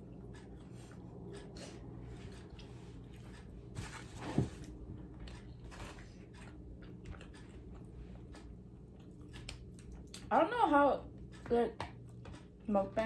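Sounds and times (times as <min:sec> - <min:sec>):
chewing food: 0:00.0 - 0:03.7, 0:04.6 - 0:10.3.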